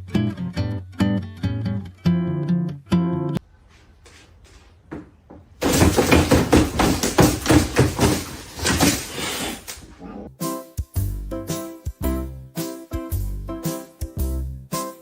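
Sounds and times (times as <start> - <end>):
rapid knocks: 4.9 - 9.2.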